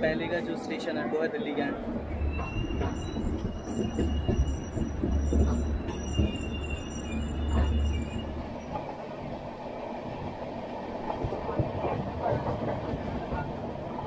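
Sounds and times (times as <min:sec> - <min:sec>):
train rumbling on rails: 0:00.0 - 0:14.0
high-pitched wheel squeals: 0:02.1 - 0:08.9.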